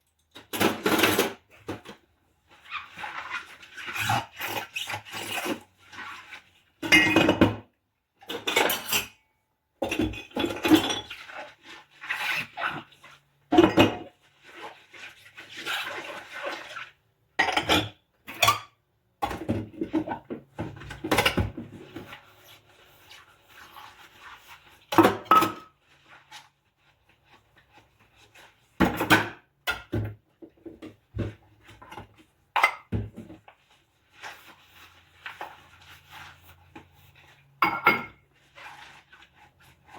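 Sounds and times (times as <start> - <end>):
scrubbing dishes: 9.8 - 39.9
dishes clinking: 37.6 - 38.2.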